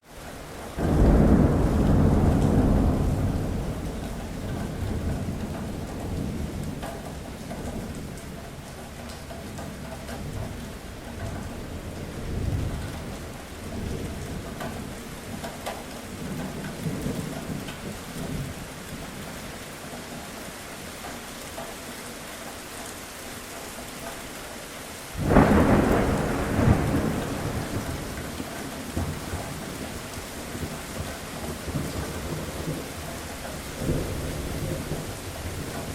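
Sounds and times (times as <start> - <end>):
steady rain: 0.0 - 35.9
loud thunderclap: 0.8 - 6.9, 25.2 - 30.8
rolling thunder: 0.8 - 8.2, 25.2 - 35.9.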